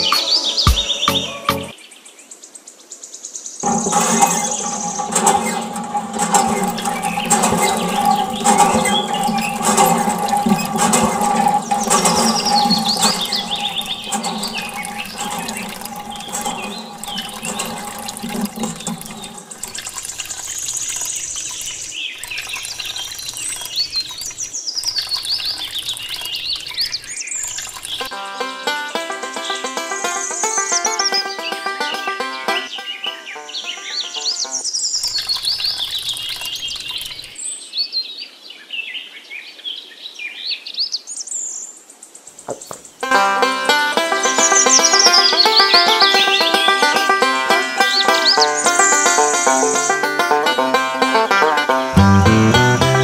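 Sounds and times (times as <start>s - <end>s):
water pouring and splashing: 3.6s - 28.1s, 34.7s - 37.4s, 42.4s - 53.0s.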